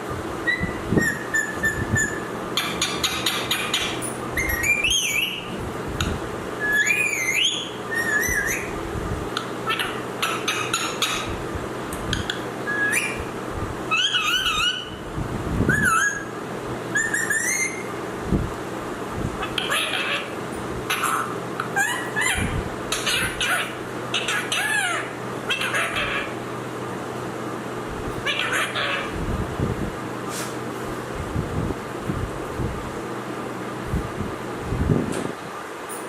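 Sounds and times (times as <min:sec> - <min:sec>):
parrot whistling: 0:00.4 - 0:05.5, 0:06.6 - 0:08.8, 0:12.6 - 0:13.3, 0:13.9 - 0:15.0, 0:15.7 - 0:16.3, 0:16.9 - 0:17.9
parrot clicking chatter: 0:01.3 - 0:05.4.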